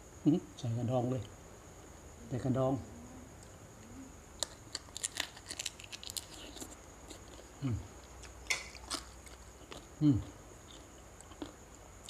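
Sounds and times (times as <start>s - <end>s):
shrimp shells cracking: 4.4s - 7.2s, 8.5s - 9.8s.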